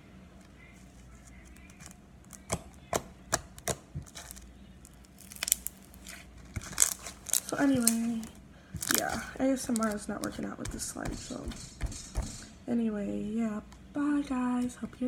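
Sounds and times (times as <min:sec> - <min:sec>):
slime squishing with pops: 0:01.5 - 0:12.5.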